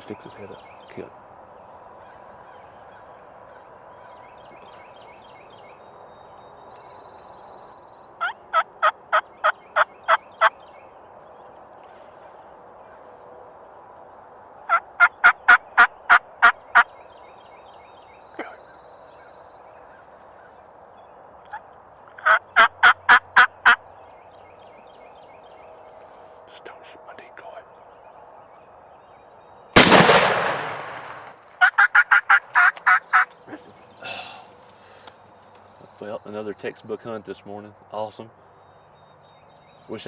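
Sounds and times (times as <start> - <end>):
turkey gobbling: 14.7 - 16.6, 22.2 - 23.8, 31.6 - 33.3.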